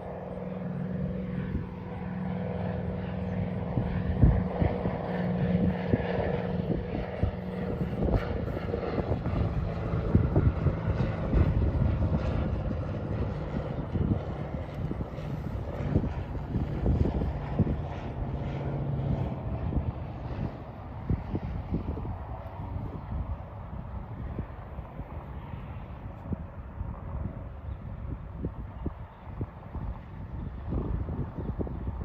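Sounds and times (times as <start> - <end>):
propeller airplane engine droning: 0.0 - 32.0.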